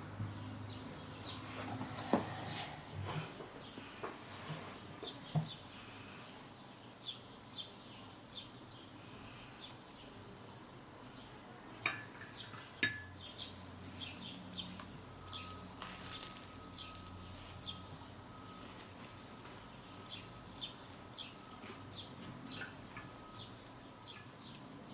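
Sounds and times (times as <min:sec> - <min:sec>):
faint steady hum and tone: 0:00.0 - 0:24.9
small birds chirping: 0:00.2 - 0:01.6, 0:04.9 - 0:11.4, 0:12.3 - 0:18.6, 0:19.4 - 0:24.9
dishes clinking: 0:11.8 - 0:13.2.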